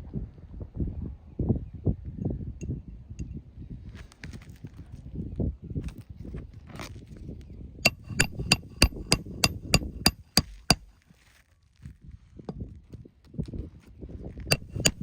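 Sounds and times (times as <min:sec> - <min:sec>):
hammer striking a nail: 0:07.9 - 0:11.0, 0:14.5 - 0:15.0.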